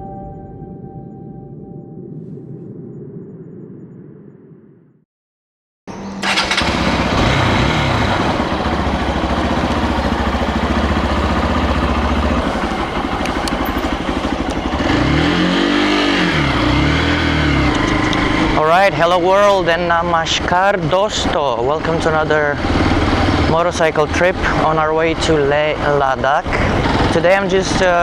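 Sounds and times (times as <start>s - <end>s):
motorcycle engine running: 6.0s - 28.0s.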